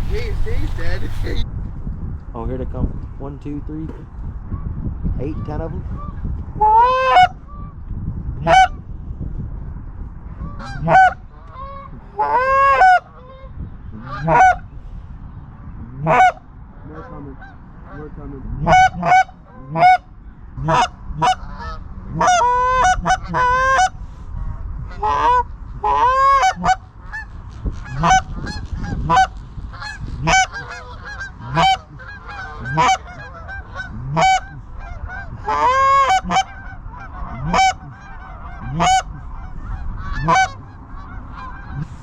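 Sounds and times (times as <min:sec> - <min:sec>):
geese honking and clucking: 0:00.0 - 0:01.4, 0:05.9 - 0:07.8, 0:08.4 - 0:08.8, 0:10.4 - 0:14.7, 0:16.0 - 0:24.0, 0:24.8 - 0:42.0.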